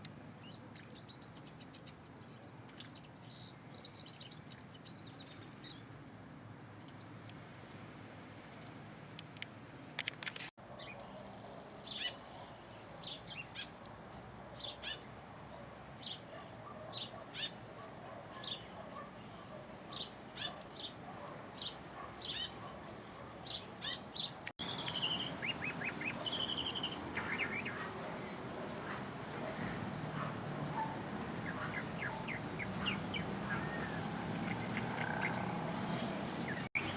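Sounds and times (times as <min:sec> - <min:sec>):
songbirds chirping: 0:10.7 - 0:36.9
bird calls with held high note: 0:24.6 - 0:36.9.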